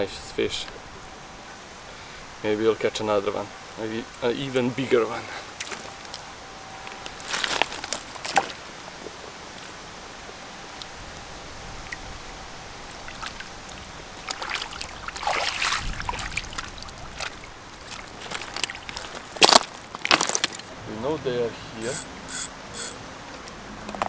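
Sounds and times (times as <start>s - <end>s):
water splashing and sloshing: 5.4s - 6.3s, 6.9s - 9.8s, 12.8s - 20.8s
flowing river water: 5.4s - 20.8s.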